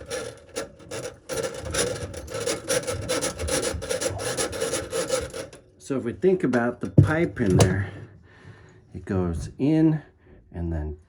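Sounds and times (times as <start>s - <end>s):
steel cable scraping in drain: 0.0s - 8.7s.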